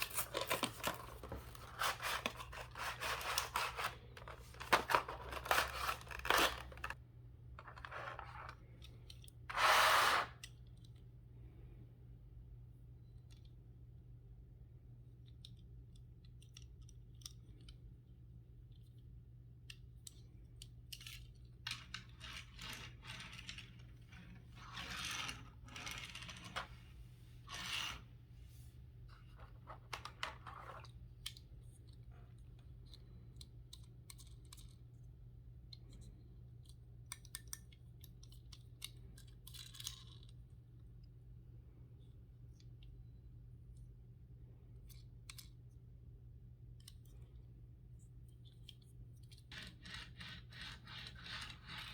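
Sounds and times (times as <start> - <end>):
plastic and cardboard crinkling: 0.0 - 7.0.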